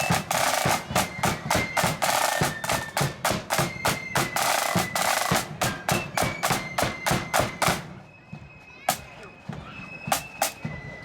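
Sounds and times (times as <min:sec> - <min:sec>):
faint high flute notes: 0:00.0 - 0:11.0
marching band drums: 0:00.0 - 0:11.0.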